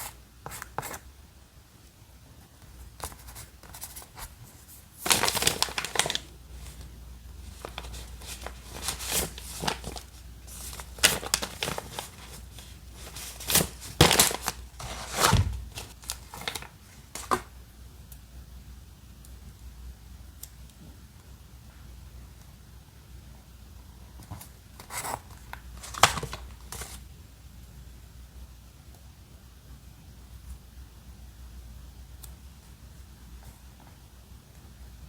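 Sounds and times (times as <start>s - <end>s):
paper rustling and crinkling: 3.0s - 17.5s, 24.2s - 27.0s.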